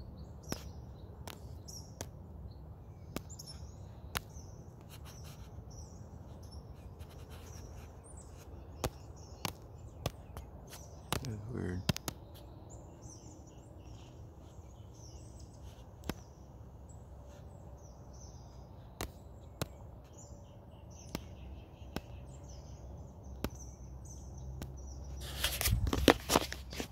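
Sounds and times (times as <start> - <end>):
small birds chirping: 0.0 - 26.9
sharp clicks: 8.8 - 12.4
loud rustling crunching: 25.1 - 26.9.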